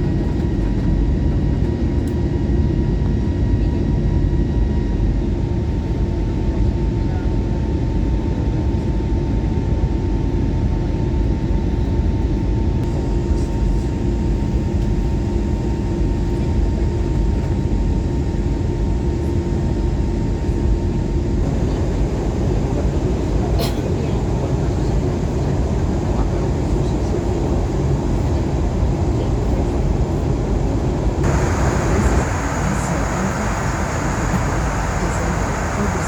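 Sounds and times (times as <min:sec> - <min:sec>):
airplane cabin rumble: 0:19.5 - 0:36.0
faint whining tones: 0:21.4 - 0:36.0.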